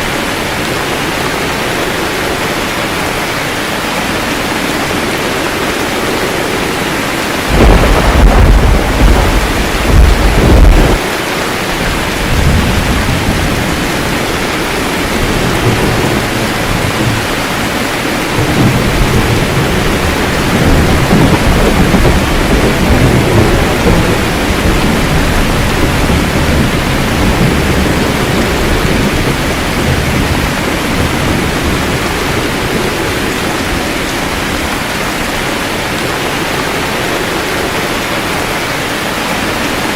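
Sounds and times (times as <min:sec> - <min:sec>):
heavy rain: 0:00.0 - 0:39.9
thunder rumbling: 0:00.0 - 0:39.9.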